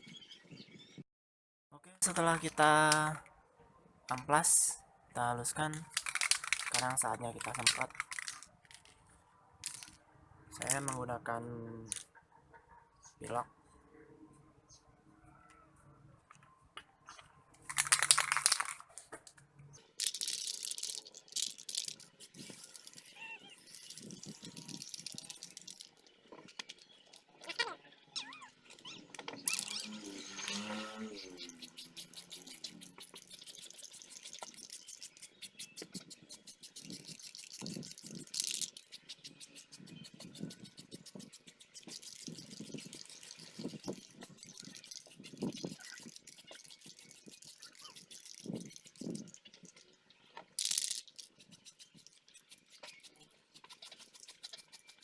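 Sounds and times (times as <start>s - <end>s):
spray-paint can hissing: 19.8s - 26.1s, 29.5s - 49.7s, 50.6s - 55.0s.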